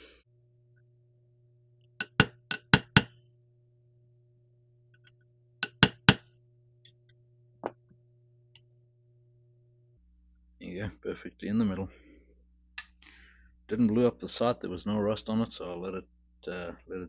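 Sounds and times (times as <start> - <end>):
hammer tapping metal punch: 2.0 - 3.1, 5.6 - 6.2.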